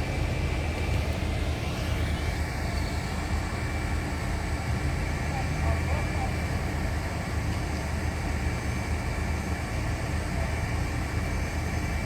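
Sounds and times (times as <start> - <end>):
idling heavy vehicles and traffic: 0.0 - 12.0
thin steady whine: 0.0 - 12.0.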